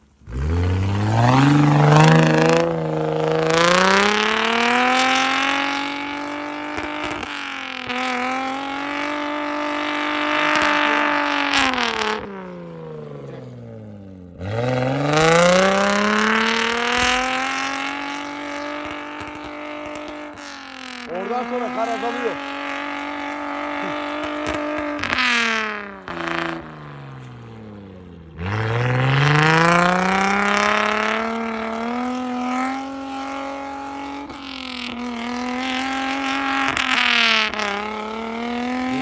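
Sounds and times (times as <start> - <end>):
engine revving hard: 0.0 - 12.5, 14.4 - 39.0.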